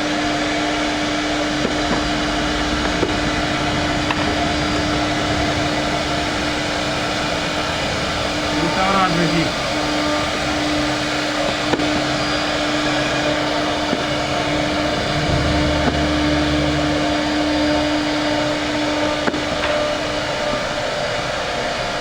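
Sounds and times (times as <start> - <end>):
woodworking machine motor humming: 0.0 - 22.0.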